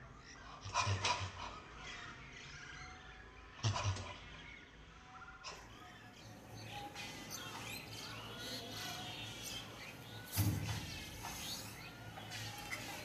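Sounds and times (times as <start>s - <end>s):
small birds chirping: 5.5s - 13.0s.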